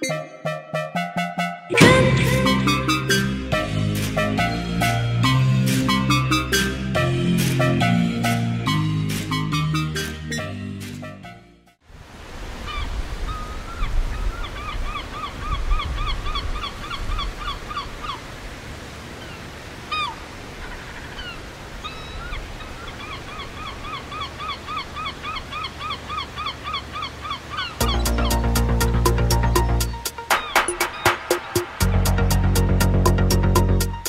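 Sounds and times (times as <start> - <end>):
bird calling: 19.2 - 32.2.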